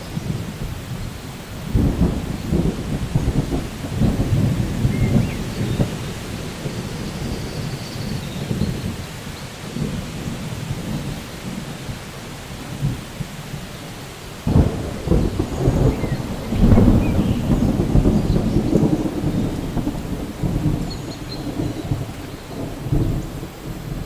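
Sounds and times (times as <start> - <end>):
rolling thunder: 0.0 - 24.0
steady rain: 0.0 - 24.0.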